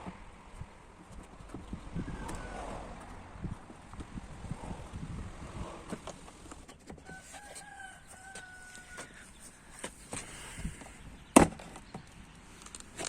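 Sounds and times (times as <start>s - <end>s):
rooster crowing: 7.0s - 9.3s.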